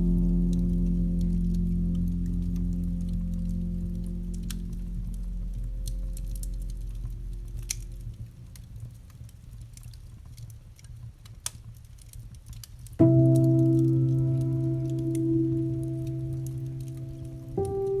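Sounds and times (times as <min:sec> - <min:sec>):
sustained piano chord: 0:00.0 - 0:08.4, 0:13.0 - 0:18.0
wood fire crackling: 0:00.0 - 0:18.0.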